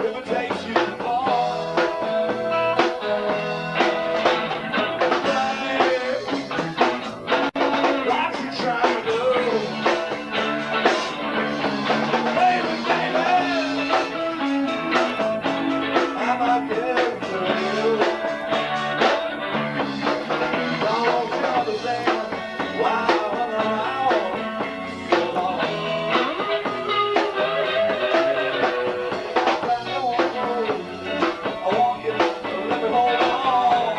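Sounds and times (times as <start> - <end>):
bass guitar: 0.0 - 33.9
drum kit beat: 0.0 - 33.9
electric guitar: 0.0 - 33.9.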